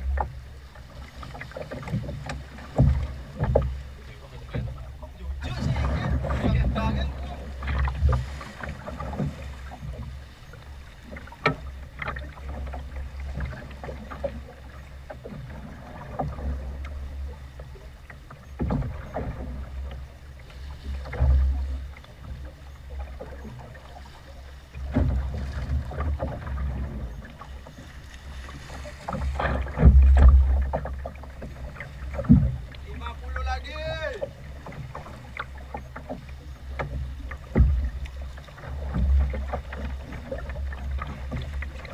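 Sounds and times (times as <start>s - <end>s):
waves slapping against boat hull: 0.0s - 41.9s
wind buffeting microphone: 4.5s - 10.1s.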